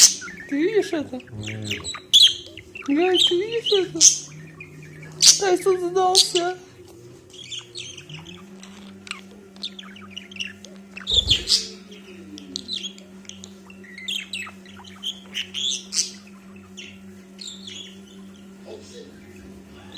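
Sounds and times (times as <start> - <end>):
steady low hum: 9.9 - 18.6
parrot chirping: 11.1 - 11.8.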